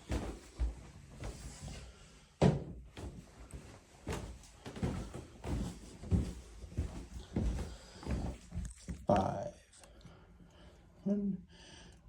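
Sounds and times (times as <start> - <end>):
soft irregular thumps and knocks: 0.0 - 9.0.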